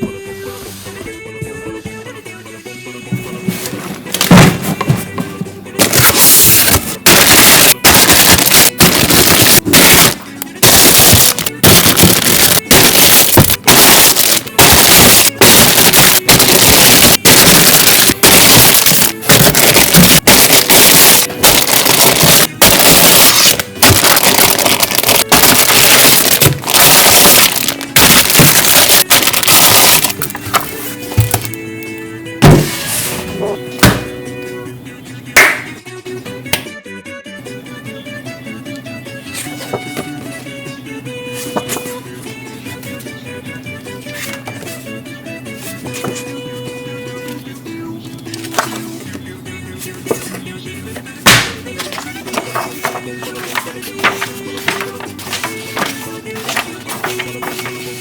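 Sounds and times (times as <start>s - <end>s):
plastic packaging crinkling: 5.8s - 31.6s.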